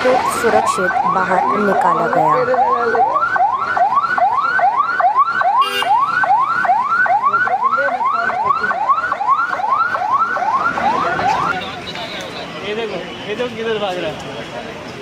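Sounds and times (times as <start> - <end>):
electronic siren wailing: 0.0 - 11.6.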